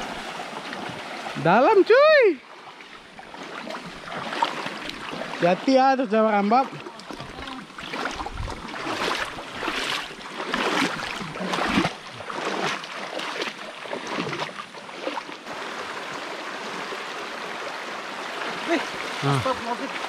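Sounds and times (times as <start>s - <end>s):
stream rushing: 0.0s - 20.0s
water splashing from wading: 0.0s - 20.0s.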